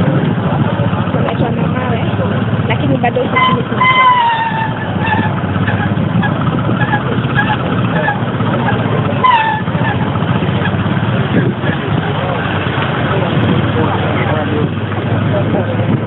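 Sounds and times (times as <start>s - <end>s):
background voices: 0.0s - 5.6s, 6.6s - 16.0s
motorcycle engine running: 0.0s - 16.0s.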